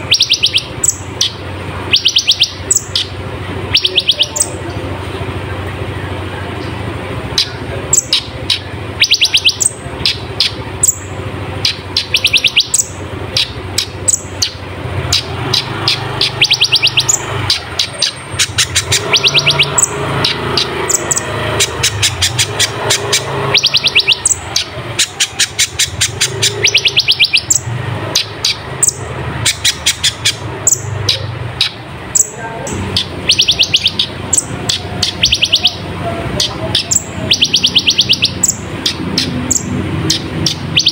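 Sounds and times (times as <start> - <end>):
bird twittering trills: 0.0 - 5.4, 6.5 - 40.9
steady low hum: 0.0 - 40.8.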